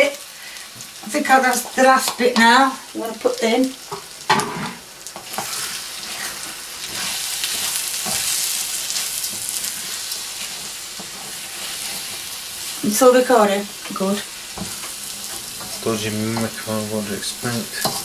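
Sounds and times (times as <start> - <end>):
food sizzling in a wok: 0.0 - 18.0
spatula stirring and scraping: 3.9 - 12.8, 13.8 - 18.0.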